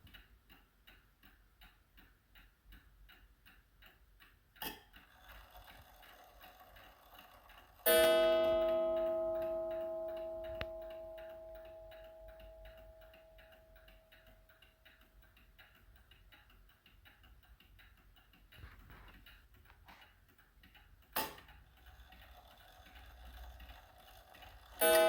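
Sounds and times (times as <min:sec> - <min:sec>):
clock ticking: 0:00.0 - 0:25.0
clock strike ringing: 0:05.4 - 0:13.9, 0:22.6 - 0:25.0.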